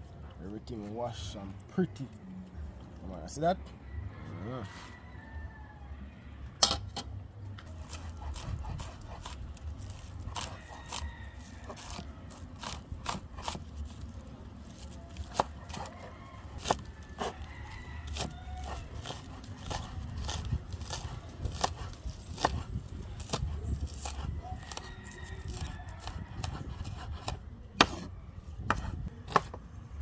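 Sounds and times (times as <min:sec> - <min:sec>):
knife chopping on cutting board: 0:25.6 - 0:29.6.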